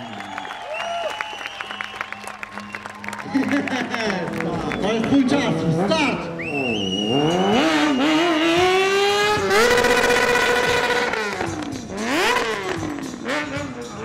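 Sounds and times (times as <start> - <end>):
motorcycle engine revving: 4.8 - 14.0.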